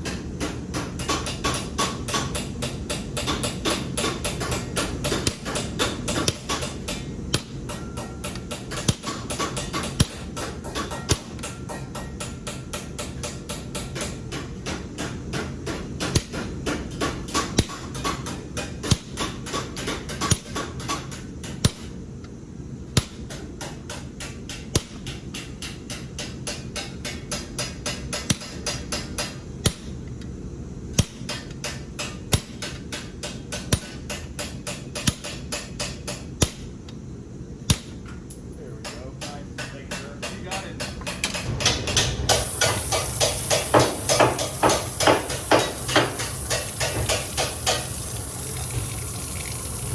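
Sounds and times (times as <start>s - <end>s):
hammer striking metal: 41.6s - 48.5s.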